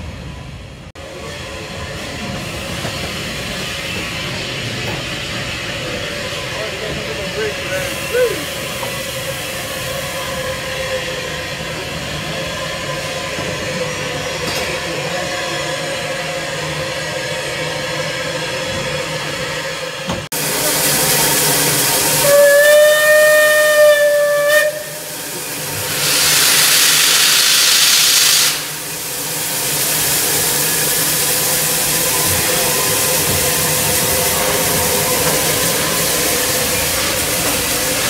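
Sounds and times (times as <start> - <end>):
steam hissing: 1.4 - 16.8, 20.4 - 38.0
steam whistle: 22.1 - 25.2.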